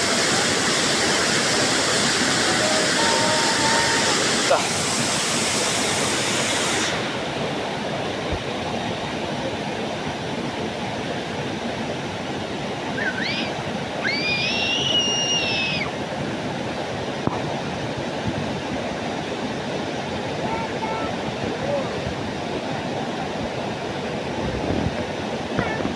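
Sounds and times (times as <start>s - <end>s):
waterfall rushing: 0.0s - 17.7s.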